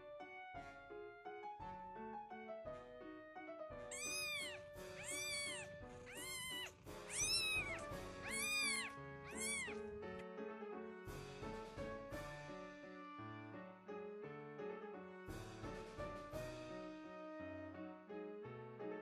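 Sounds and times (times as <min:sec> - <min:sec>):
soft piano music: 0:00.0 - 0:19.0
kitten mewing: 0:03.9 - 0:09.9.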